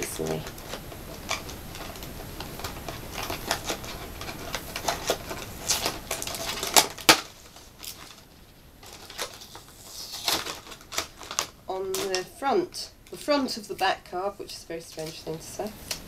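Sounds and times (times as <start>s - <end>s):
plastic packaging cracking: 0.0s - 12.3s
plastic packaging crinkling: 0.0s - 14.2s.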